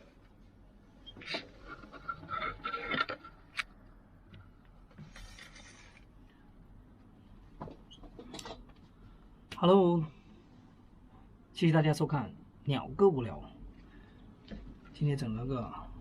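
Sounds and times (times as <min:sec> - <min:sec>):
scraping and rubbing in bowl: 0:01.3 - 0:03.4.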